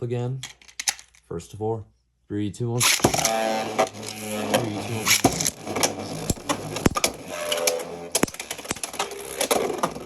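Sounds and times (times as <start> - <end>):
spinning tops clashing: 8.2 - 9.1.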